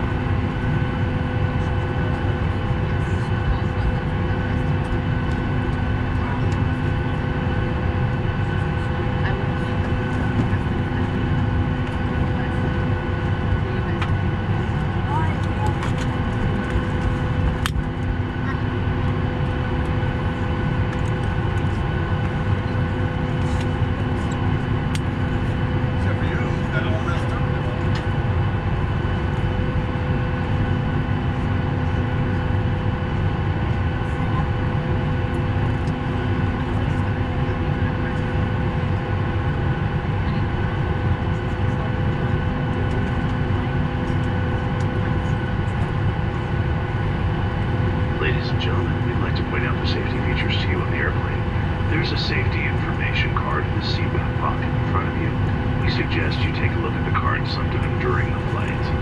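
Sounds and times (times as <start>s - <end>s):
airliner cabin drone: 0.0s - 59.0s
steady whining tones: 41.6s - 59.0s.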